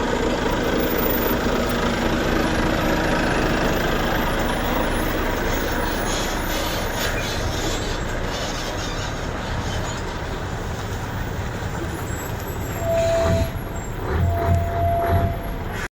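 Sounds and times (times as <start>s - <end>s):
heavy trucks rumbling past: 0.0s - 15.9s
horn blasts: 12.8s - 15.9s.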